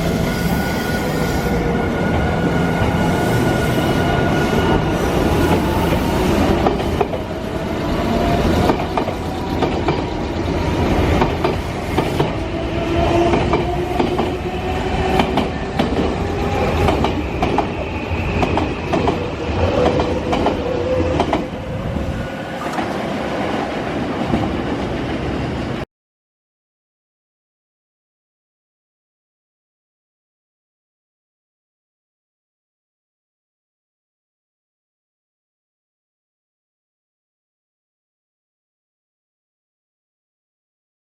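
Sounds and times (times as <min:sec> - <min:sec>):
electric train running: 0:00.0 - 0:23.8
wheels clicking over rail joints: 0:15.1 - 0:23.0.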